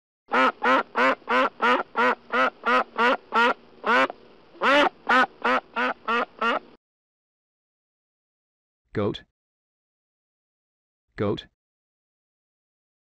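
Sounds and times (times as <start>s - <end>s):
duck quacking: 0.3s - 6.7s.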